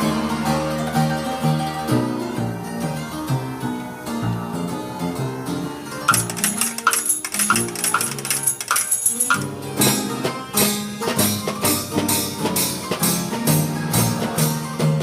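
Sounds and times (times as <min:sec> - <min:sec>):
percussion strikes: 0:06.1 - 0:10.2.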